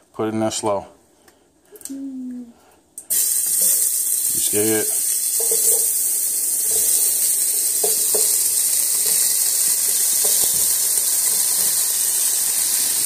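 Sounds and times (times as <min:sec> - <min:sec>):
shrimp and peppers sizzling in oil: 0:03.1 - 0:13.0.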